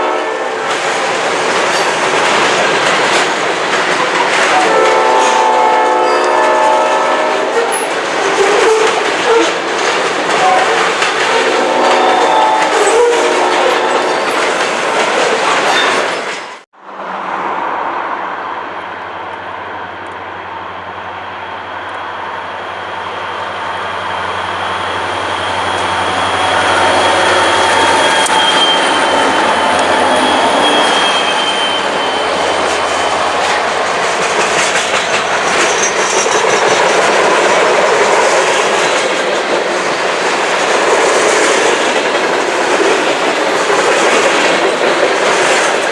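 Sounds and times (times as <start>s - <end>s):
train horn: 0.0s - 0.7s, 4.2s - 9.6s, 10.3s - 14.4s
train wheels clattering on rails: 0.0s - 16.6s, 24.4s - 45.9s
high wheel squeal: 10.4s - 14.6s, 21.5s - 37.1s.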